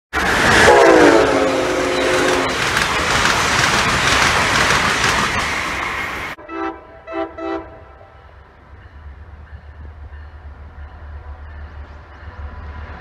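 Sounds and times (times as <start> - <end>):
passing train rushing clatter: 0.1 - 13.0
train horn chord: 0.6 - 2.6, 6.4 - 8.3.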